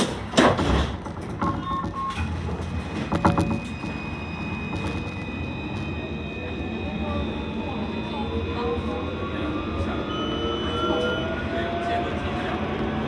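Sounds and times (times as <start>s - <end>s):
low hum: 1.7s - 11.7s
short beeps: 2.9s - 11.5s
steady high tone: 3.0s - 13.0s.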